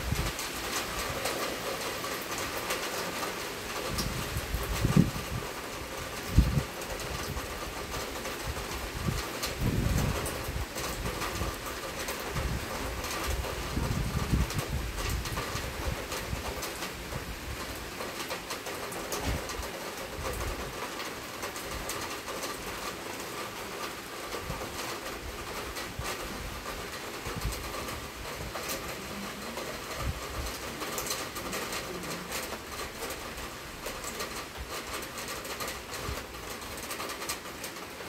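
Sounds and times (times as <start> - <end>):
wind rumble on microphone: 0.0 - 1.4, 3.8 - 17.7, 19.1 - 20.8, 24.4 - 31.7
heavy rain pouring: 0.0 - 38.0.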